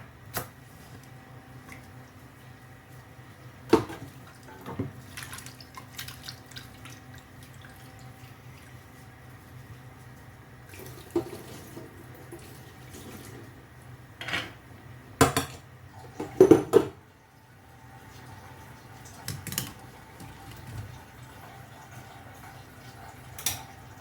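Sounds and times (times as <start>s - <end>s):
dishes clattering: 16.2s - 17.0s
running water: 17.9s - 24.0s.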